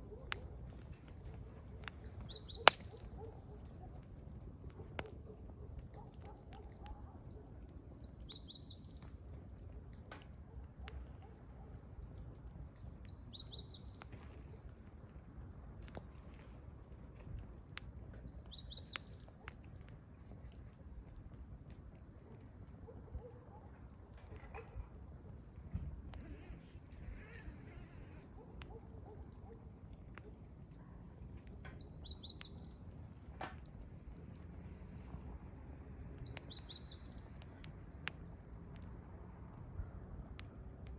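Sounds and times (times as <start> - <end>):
wood fire crackling and popping: 0.0 - 40.9
bird chirping: 1.8 - 3.6, 12.9 - 14.5, 18.1 - 19.6, 31.6 - 33.2, 36.0 - 38.0
songbird twittering: 1.8 - 3.7, 36.1 - 37.9.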